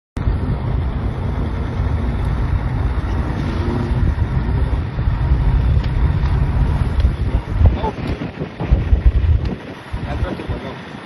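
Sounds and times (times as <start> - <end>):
wind buffeting the microphone: 0.2 - 11.0.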